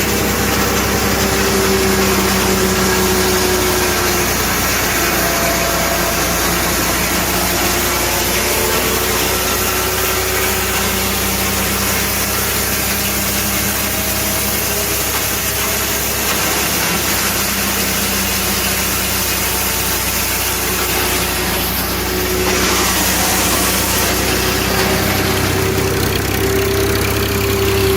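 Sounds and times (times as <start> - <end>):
tractor engine running: 0.0 - 27.9
wood chipper hissing: 0.0 - 27.9.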